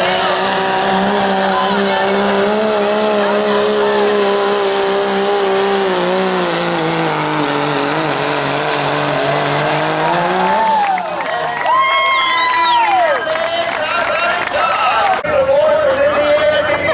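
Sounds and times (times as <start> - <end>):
turbo whine: 0.0 - 12.3
diesel truck engine at full throttle: 0.0 - 16.9.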